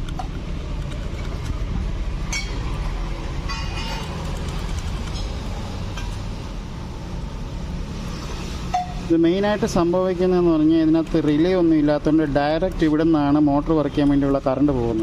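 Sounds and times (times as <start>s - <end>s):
screwdriver scraping on contacts: 0.0s - 1.7s, 3.5s - 6.3s.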